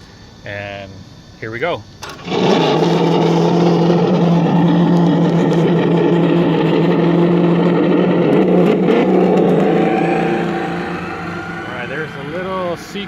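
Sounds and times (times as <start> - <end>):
road noise: 2.0 - 13.0
vehicle drone: 2.2 - 13.0.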